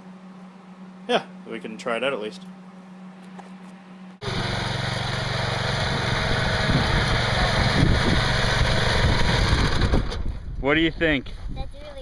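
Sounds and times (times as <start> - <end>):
garden tractor engine running: 4.2 - 10.3.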